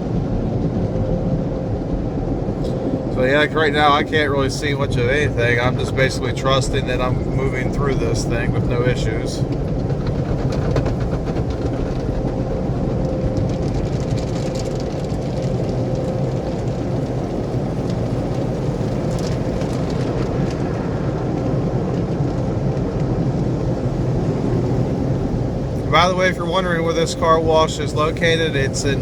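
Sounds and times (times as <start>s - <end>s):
car wash machinery rumble and hiss: 0.0s - 29.0s
water spattering on car body: 7.7s - 29.0s.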